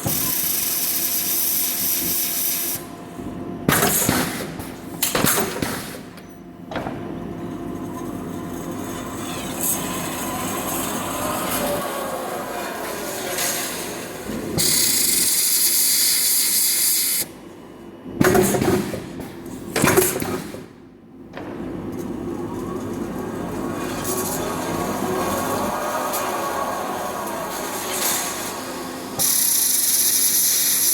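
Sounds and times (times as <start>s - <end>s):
gliding machine whine: 7.4s - 15.2s, 21.9s - 30.5s
machinery running: 7.8s - 15.2s, 21.9s - 30.9s.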